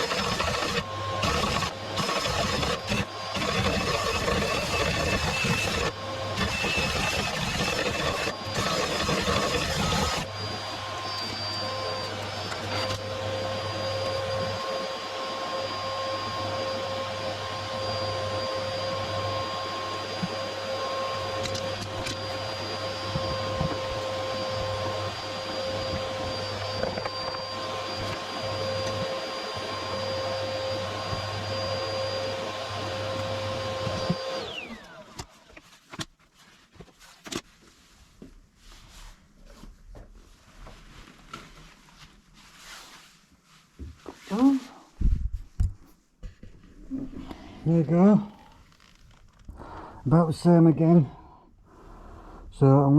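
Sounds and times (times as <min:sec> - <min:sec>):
vacuum cleaner running: 0:00.0 - 0:35.4.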